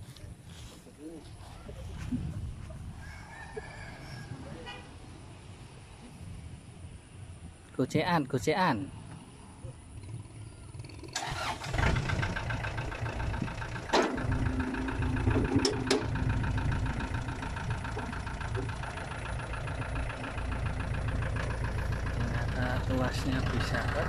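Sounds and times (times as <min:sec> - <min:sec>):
tractor diesel engine starting and running: 0:10.0 - 0:24.0.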